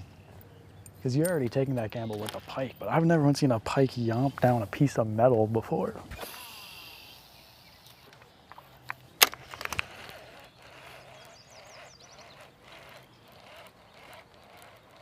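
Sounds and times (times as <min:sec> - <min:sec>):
outdoor background noise: 0:00.0 - 0:15.0
high chirps: 0:10.3 - 0:13.8.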